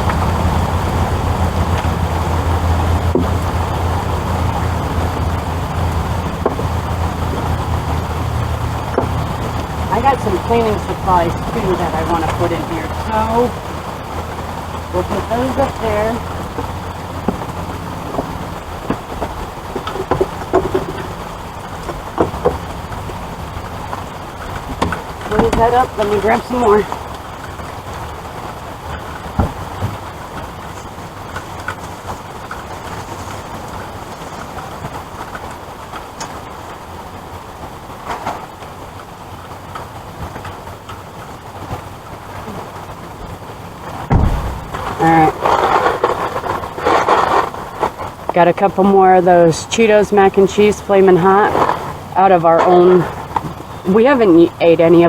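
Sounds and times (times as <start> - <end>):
heavy rain pouring: 0.0 - 55.0
steady low hum: 0.0 - 55.0
bottles clunking on wooden shelves: 8.8 - 13.0, 15.4 - 23.2
loud low thud: 44.1 - 45.0.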